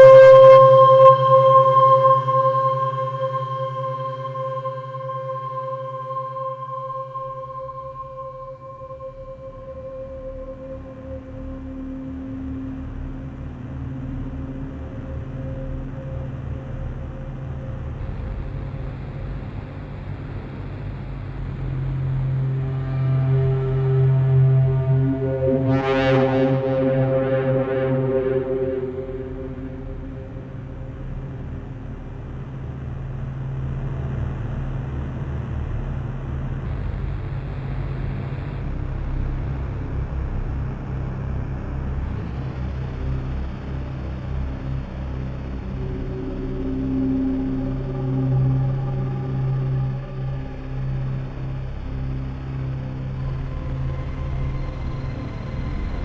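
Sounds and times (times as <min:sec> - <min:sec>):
synthesizer drone: 0:00.0 - 0:56.0
faint high sliding tone: 0:22.7 - 0:31.1.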